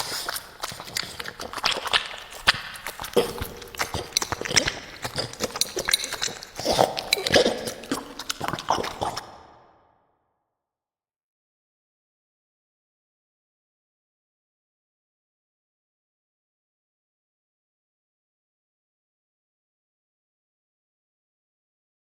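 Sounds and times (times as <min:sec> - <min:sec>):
dog chewing and crunching food: 0:00.0 - 0:09.5.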